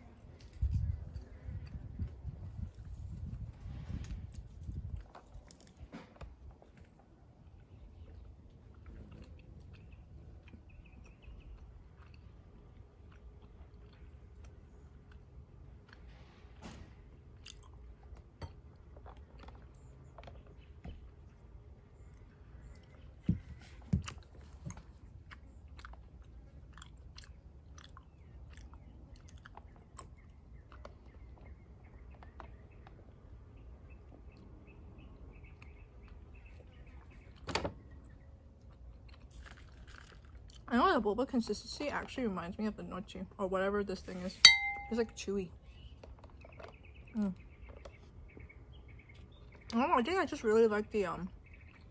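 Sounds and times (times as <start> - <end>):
chewing boba pearls: 6.5 - 16.4, 17.3 - 33.2, 34.2 - 41.0.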